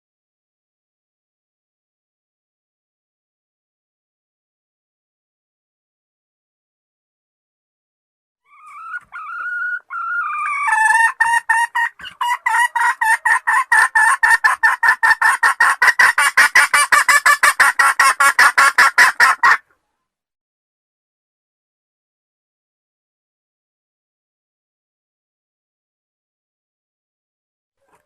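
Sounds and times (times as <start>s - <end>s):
chicken calling and clucking: 8.4s - 20.1s, 27.8s - 28.0s.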